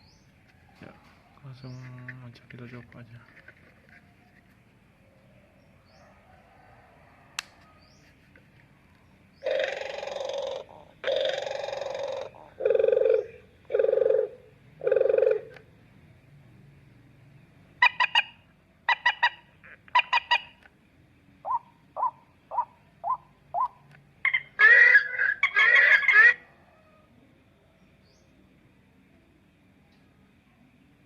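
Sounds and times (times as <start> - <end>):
bird calls from small speaker: 9.4 - 15.6, 17.8 - 20.6, 21.4 - 26.5.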